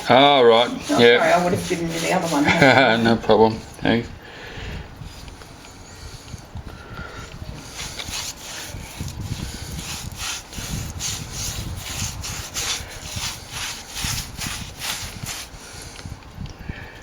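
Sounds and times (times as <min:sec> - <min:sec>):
brush scratching on plaster wall: 0:00.0 - 0:04.0, 0:07.2 - 0:16.0.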